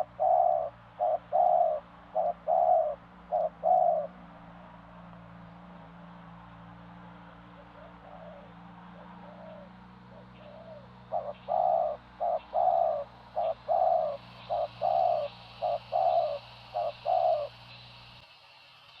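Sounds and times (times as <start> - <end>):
dove cooing: 0.0 - 4.3, 7.5 - 18.2.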